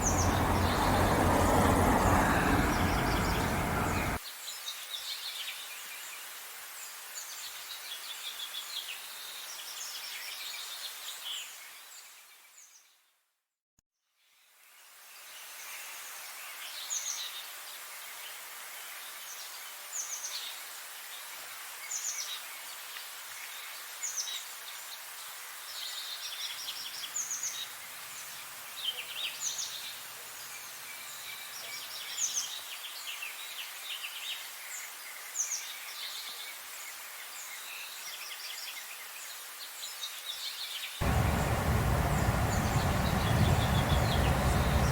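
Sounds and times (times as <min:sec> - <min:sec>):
birds singing and chirping: 0:00.0 - 0:04.2, 0:41.0 - 0:44.9
background hiss: 0:41.0 - 0:44.9.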